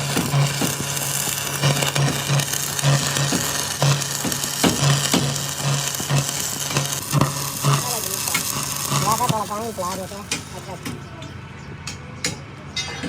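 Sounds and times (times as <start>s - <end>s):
pulsing low hum: 0.0s - 10.6s
arc welding crackling sizzle: 0.0s - 11.2s.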